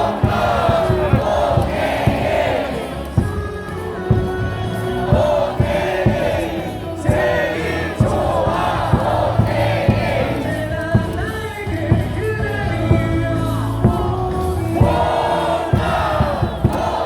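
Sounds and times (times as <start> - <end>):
crowd singing and chanting: 0.0 - 17.0
music from stadium speakers: 0.0 - 17.0.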